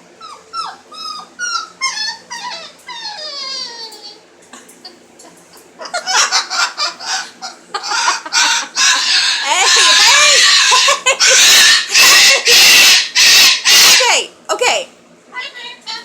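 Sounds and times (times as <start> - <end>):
bird squawking and screeching: 6.1 - 14.2.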